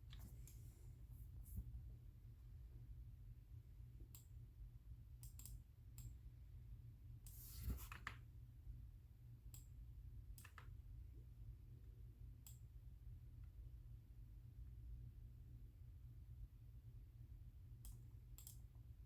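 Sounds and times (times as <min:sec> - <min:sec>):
low steady hum: 0:00.0 - 0:19.0
mouse and keyboard clicks: 0:10.4 - 0:10.7.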